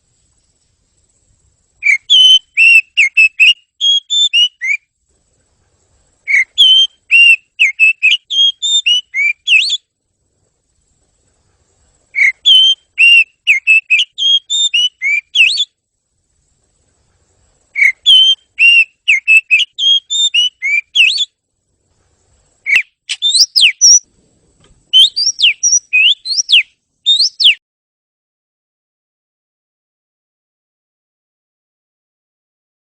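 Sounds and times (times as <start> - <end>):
bird singing whistled notes: 1.8 - 4.9, 6.1 - 9.9, 12.1 - 15.8, 17.6 - 21.4, 22.6 - 24.1, 24.9 - 27.6.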